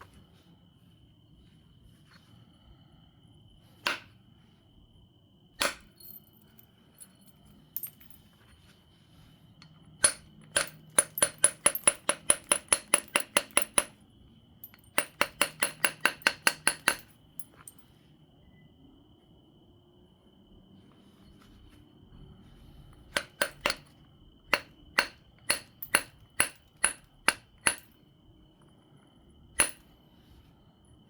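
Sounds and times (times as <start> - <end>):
sharp strikes on stone: 3.8 - 4.2, 5.6 - 6.0, 24.5 - 27.9, 29.6 - 29.9
rapid light taps on stone: 10.0 - 14.0, 14.6 - 17.8, 24.5 - 27.9.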